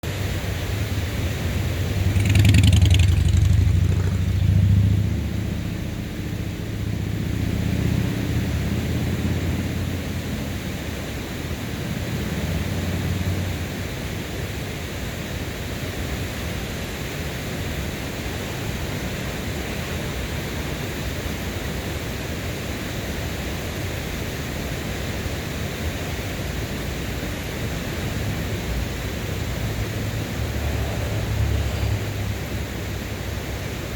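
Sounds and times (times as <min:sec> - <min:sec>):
river water rushing: 0:00.0 - 0:33.9
low rumble: 0:01.5 - 0:07.3.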